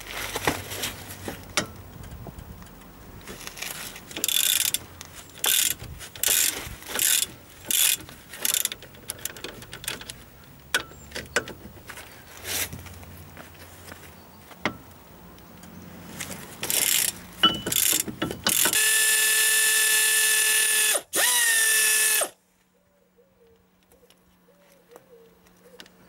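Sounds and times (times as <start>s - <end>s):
ratchet wrench clicking: 4.1s - 11.5s, 16.6s - 22.3s
sharp metal clinks: 17.4s - 18.0s.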